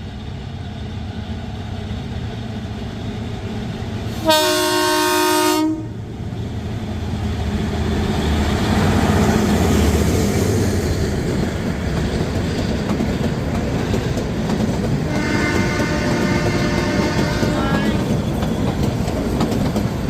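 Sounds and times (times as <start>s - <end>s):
train wheels clattering over rails: 6.6s - 20.0s.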